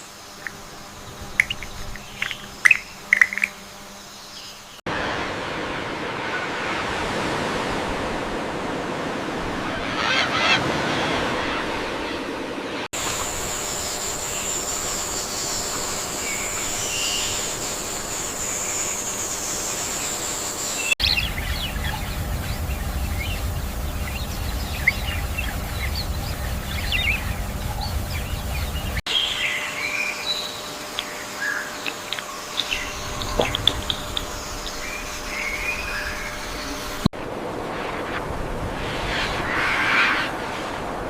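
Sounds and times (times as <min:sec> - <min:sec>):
bird chirps: 0:01.2 - 0:03.7, 0:13.8 - 0:37.0
steady high-pitched whine: 0:12.4 - 0:41.0
low rumble: 0:21.0 - 0:29.0, 0:32.8 - 0:41.0.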